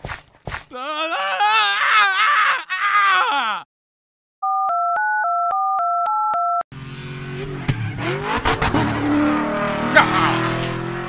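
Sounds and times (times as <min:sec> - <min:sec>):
vehicle engine whine: 0:06.7 - 0:11.0.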